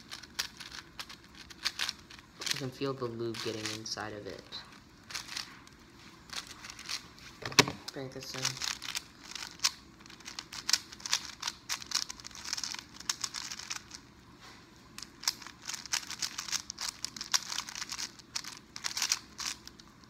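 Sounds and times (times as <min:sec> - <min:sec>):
plastic speedcube clicking: 0:00.0 - 0:04.0, 0:05.1 - 0:05.4, 0:06.3 - 0:14.0, 0:15.0 - 0:19.9.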